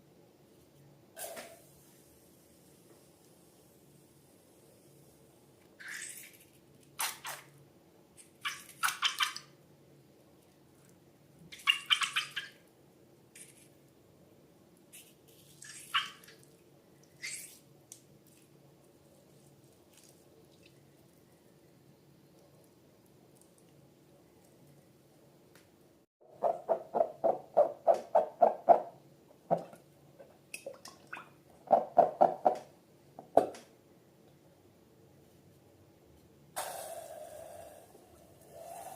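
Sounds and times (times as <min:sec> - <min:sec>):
squishy squeaks of slime: 0:05.8 - 0:07.5, 0:15.0 - 0:16.5, 0:17.1 - 0:17.7.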